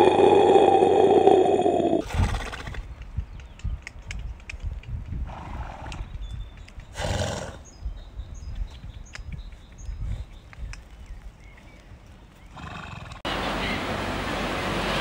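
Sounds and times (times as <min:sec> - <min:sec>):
horses breathy snorts: 0:00.0 - 0:02.9, 0:06.9 - 0:07.8, 0:12.4 - 0:13.2.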